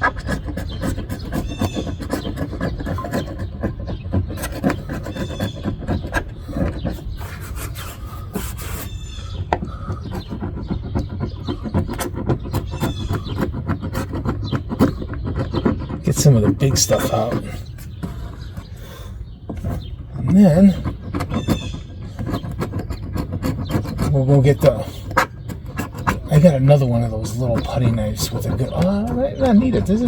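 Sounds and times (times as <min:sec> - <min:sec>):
metal blade scraping adhesive: 0:00.0 - 0:30.0.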